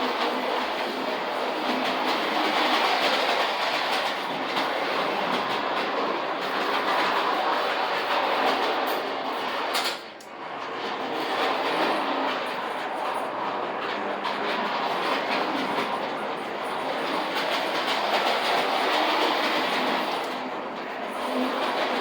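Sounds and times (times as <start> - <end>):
toy trolley whirring rattle: 11.0 - 22.0.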